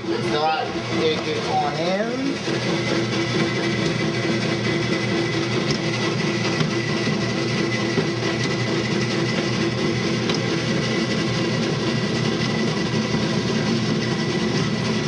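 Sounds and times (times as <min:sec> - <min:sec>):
dough mixer motor humming: 0:00.0 - 0:15.0.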